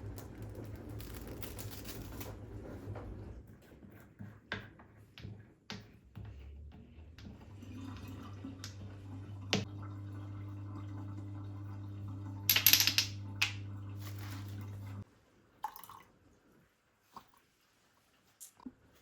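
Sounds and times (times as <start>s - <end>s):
electric appliance humming: 7.4s - 15.0s.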